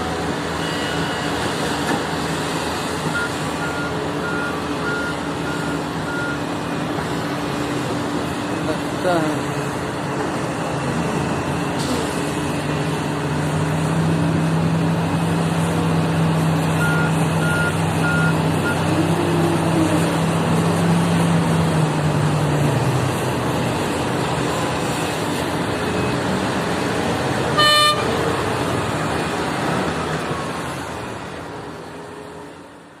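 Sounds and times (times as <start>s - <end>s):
diesel machinery engine hum: 0.0s - 33.0s
horn toot: 27.6s - 28.2s.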